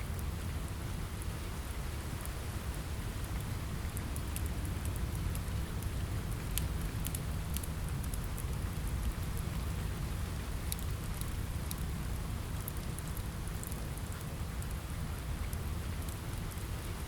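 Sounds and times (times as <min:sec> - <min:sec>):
rain pattering on a window: 0:00.0 - 0:17.0
wood fire crackling: 0:00.1 - 0:17.0.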